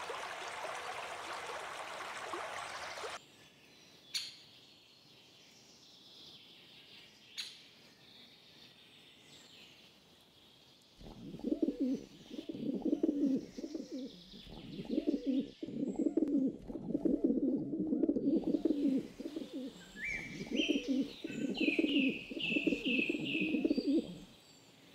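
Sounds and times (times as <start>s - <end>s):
small birds chirping: 3.9s - 24.9s
pigeon cooing: 11.0s - 24.2s.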